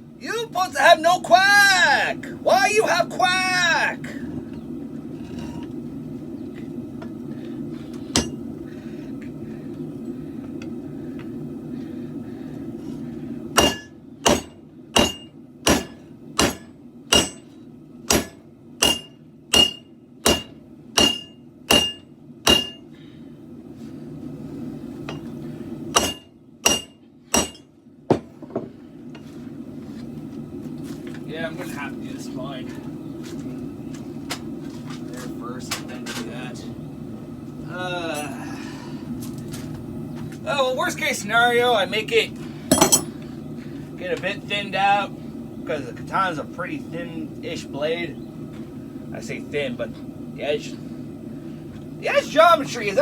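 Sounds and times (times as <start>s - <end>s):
hammer striking anvil: 8.2s - 8.4s, 13.6s - 17.5s, 18.1s - 22.8s, 25.1s - 25.3s, 26.0s - 28.3s, 42.7s - 43.1s.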